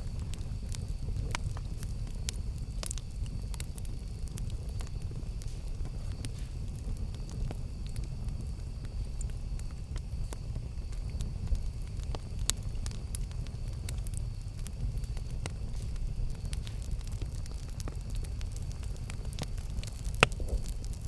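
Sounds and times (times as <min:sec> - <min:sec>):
burning wood crackling and popping: 0:00.0 - 0:21.0
low rumble of flames: 0:00.0 - 0:21.0.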